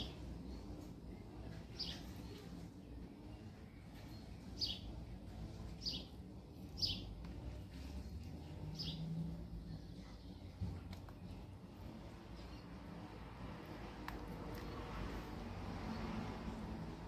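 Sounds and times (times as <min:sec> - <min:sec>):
bird chirping: 0:05.7 - 0:07.1.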